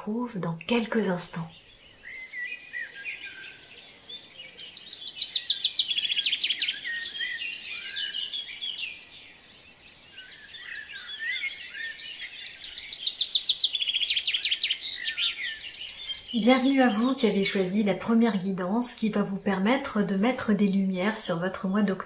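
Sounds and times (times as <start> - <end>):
songbirds trilling and chirping: 0.0 - 22.0.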